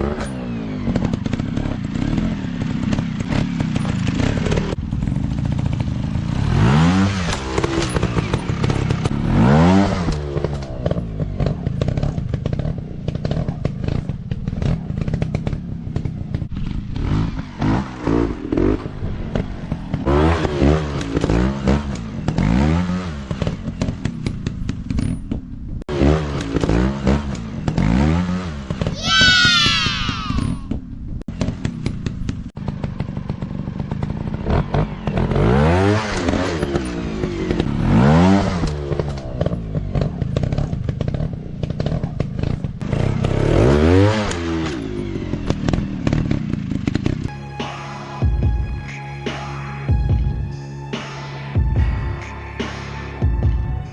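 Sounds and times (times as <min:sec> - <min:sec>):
dirt bike engines revving: 0:00.0 - 0:24.0, 0:25.9 - 0:30.7.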